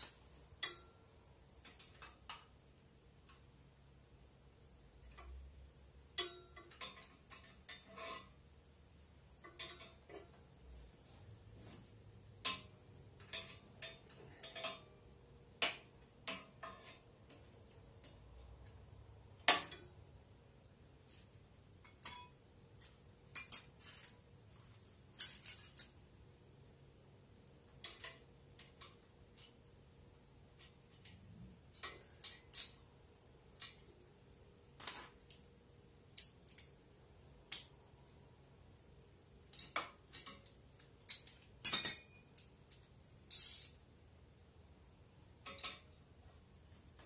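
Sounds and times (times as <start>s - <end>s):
metal tools clinking: 21.9s - 26.0s, 39.5s - 42.5s, 43.3s - 43.8s.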